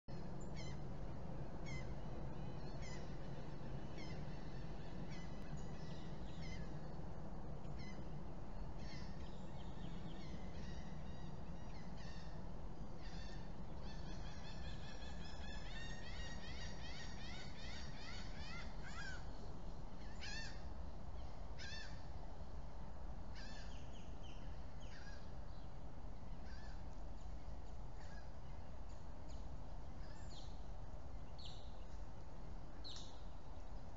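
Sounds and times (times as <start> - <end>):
low background rumble: 0.0 - 33.9
birds chirping and calling: 1.6 - 6.8, 7.6 - 20.6.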